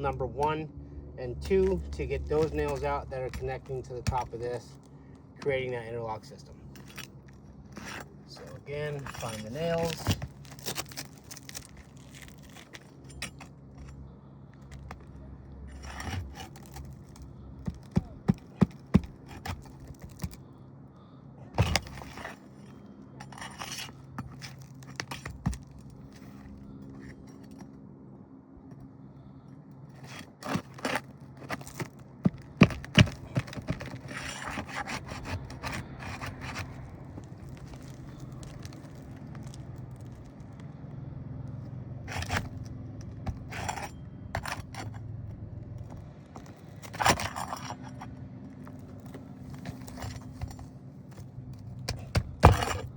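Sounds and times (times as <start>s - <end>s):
metal tool scraping shingles: 1.5s - 4.8s, 5.4s - 14.0s, 15.7s - 20.4s, 21.5s - 27.5s, 30.0s - 40.1s, 42.0s - 42.6s, 43.2s - 45.0s, 46.4s - 48.1s, 48.7s - 52.9s.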